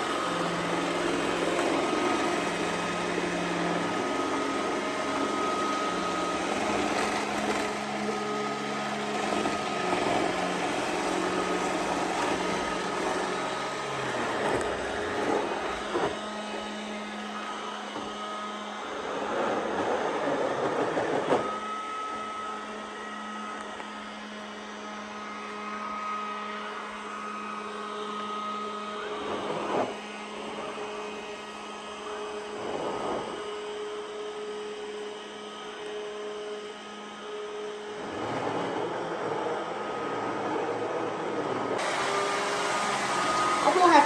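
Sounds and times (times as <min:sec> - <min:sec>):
robot vacuum running: 0:00.0 - 0:44.0.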